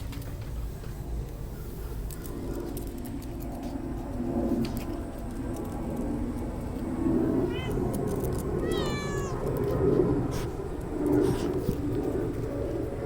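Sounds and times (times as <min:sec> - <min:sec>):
cat meowing: 0:07.4 - 0:08.0, 0:08.6 - 0:09.5.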